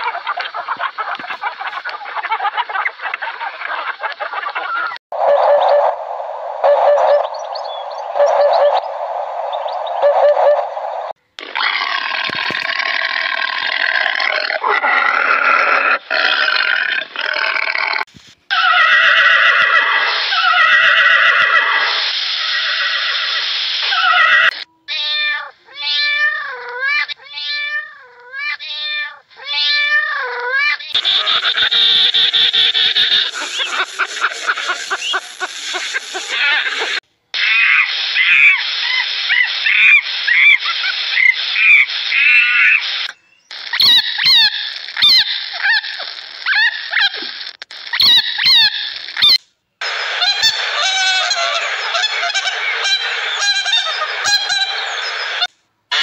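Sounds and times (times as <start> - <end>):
loud drawn-out animal calls: 4.5 - 24.7, 30.2 - 56.0
higher chirping calls: 6.6 - 11.1, 31.0 - 37.0.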